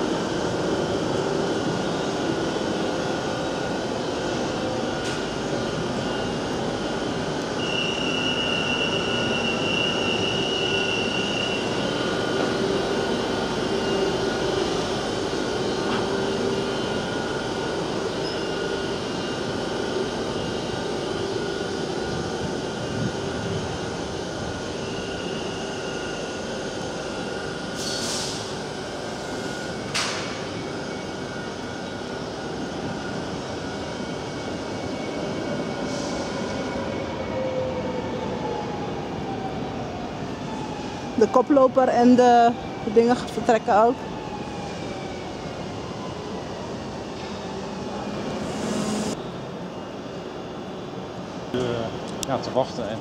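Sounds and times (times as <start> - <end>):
train hum and rumble: 0.0 - 53.0.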